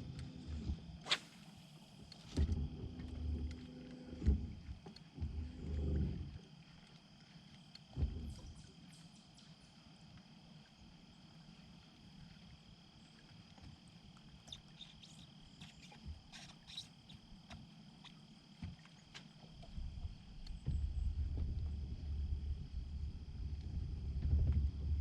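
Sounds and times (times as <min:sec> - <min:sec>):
faint clicks and ticks: 0:02.0 - 0:12.5
high-pitched insect drone: 0:14.4 - 0:18.3
low rumble: 0:19.9 - 0:25.0.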